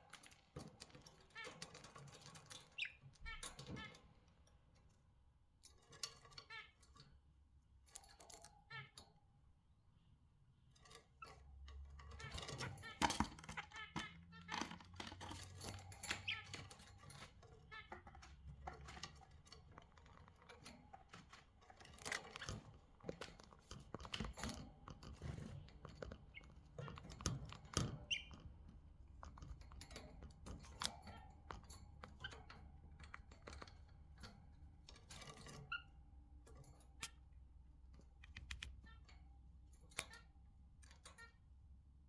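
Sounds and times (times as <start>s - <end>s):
birds pecking and chewing: 10.8s - 40.8s.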